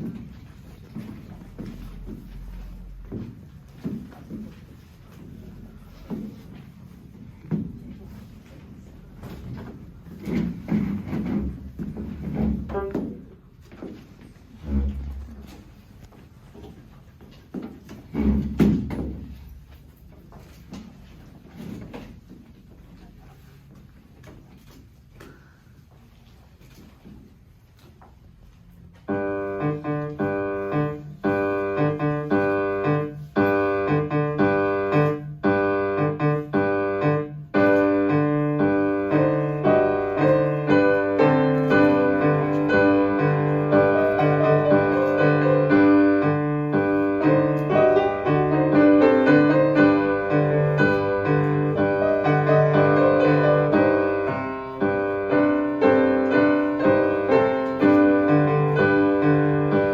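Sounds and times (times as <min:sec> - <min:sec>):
solo piano playing: 0:29.1 - 0:59.9.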